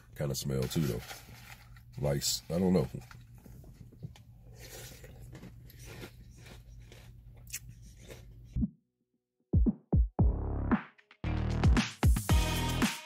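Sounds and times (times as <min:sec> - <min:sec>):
cereal crunching and chewing: 0:02.8 - 0:08.6.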